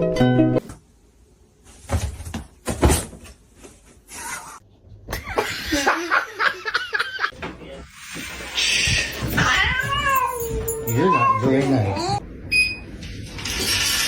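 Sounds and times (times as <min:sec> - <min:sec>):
cat yowling: 0:09.5 - 0:12.2.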